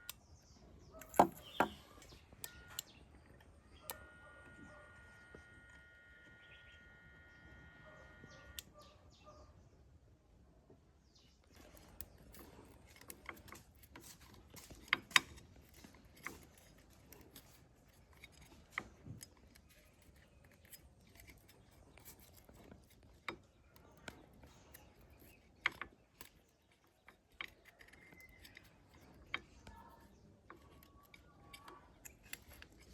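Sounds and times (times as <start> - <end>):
small tools clicking and tapping: 0.9 - 4.0, 11.5 - 32.9
faint steady whine: 1.0 - 8.8.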